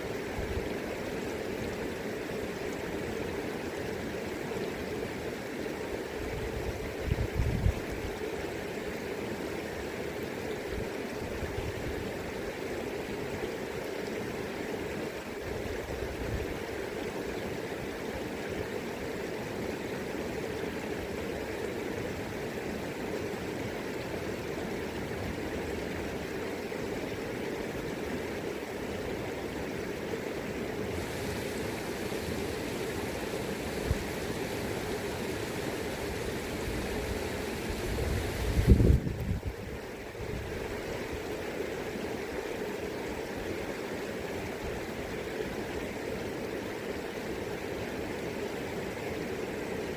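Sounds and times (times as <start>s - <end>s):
river rushing: 0.0s - 49.9s
wind rumble on microphone: 6.3s - 8.2s, 36.4s - 41.0s.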